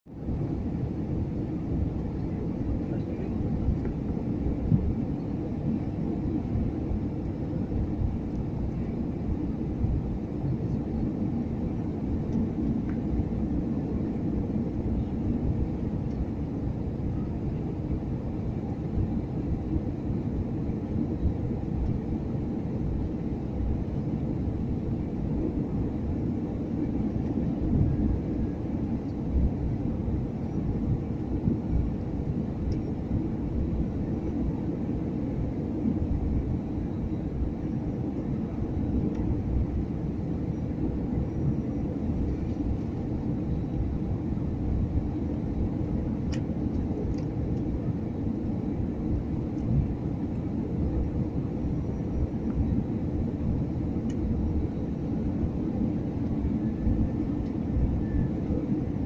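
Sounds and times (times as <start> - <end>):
airliner engines rumbling: 0.1 - 59.0
faint click: 32.7 - 32.9, 46.3 - 47.3.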